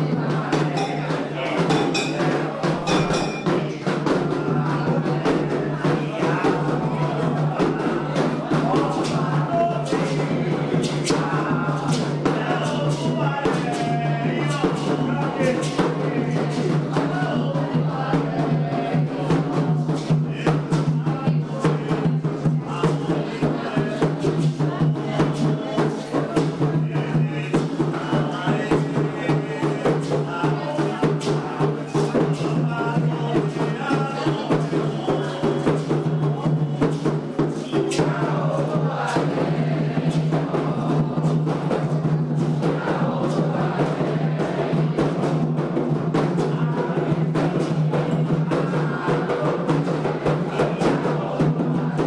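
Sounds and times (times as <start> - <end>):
hand drums in fast rhythm: 0.0 - 52.0
voices singing chants: 0.0 - 52.0.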